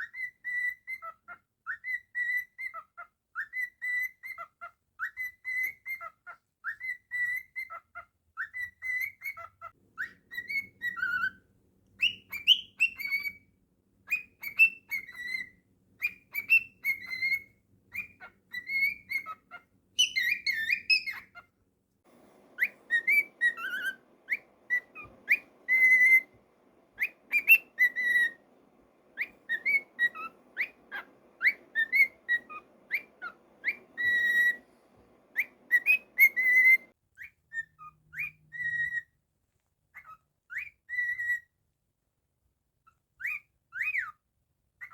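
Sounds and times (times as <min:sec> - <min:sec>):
cockatiel whistling: 0:00.0 - 0:07.8, 0:08.4 - 0:11.4, 0:12.0 - 0:13.5, 0:14.1 - 0:21.5, 0:22.4 - 0:39.1, 0:40.0 - 0:41.5, 0:43.2 - 0:44.2.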